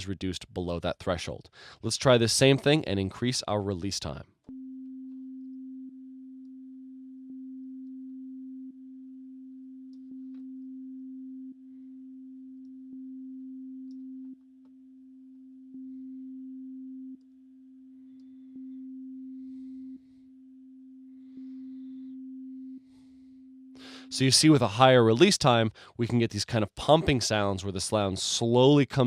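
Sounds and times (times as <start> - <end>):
low pure test tone: 4.0 - 29.0
click: 13.9 - 14.8.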